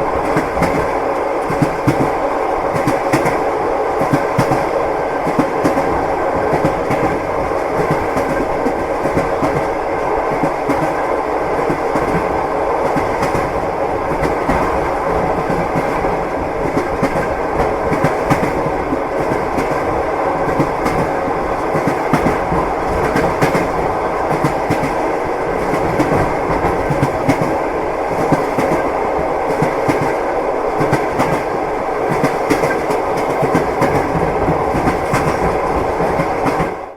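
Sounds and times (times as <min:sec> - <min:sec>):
railway carriage rumble and rattle: 0:00.0 - 0:36.9
train wheels clacking on rails: 0:00.0 - 0:36.9.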